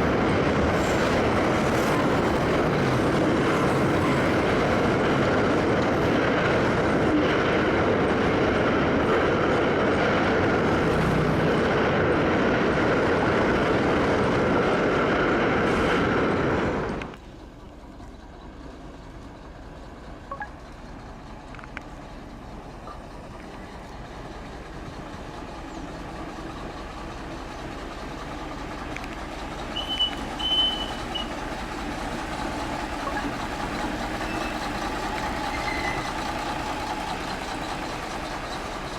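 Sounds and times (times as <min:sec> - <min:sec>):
freight train wagons rumbling: 0:00.0 - 0:38.9
faint clicks: 0:21.4 - 0:22.0, 0:28.9 - 0:29.3.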